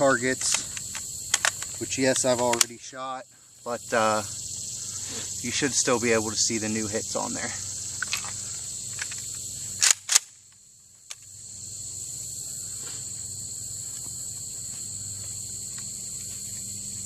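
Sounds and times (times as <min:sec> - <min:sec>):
crickets and insects chirping: 0:00.0 - 0:17.0.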